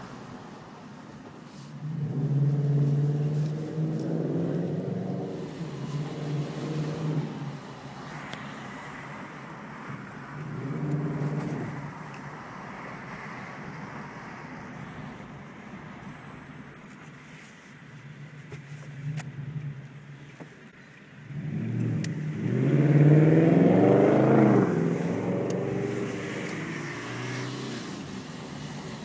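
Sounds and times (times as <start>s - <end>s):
car engine revving: 1.9s - 7.6s, 10.4s - 11.9s, 21.2s - 29.0s
low exhaust note: 21.3s - 28.0s.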